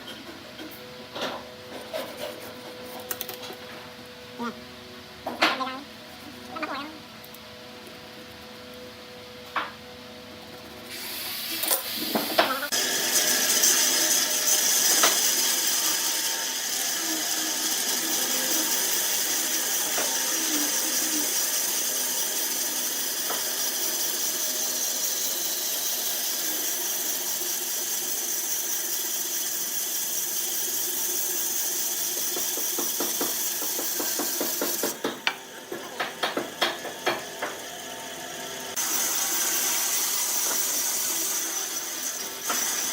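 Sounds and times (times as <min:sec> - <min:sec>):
power tool whining: 0:12.0 - 0:42.9.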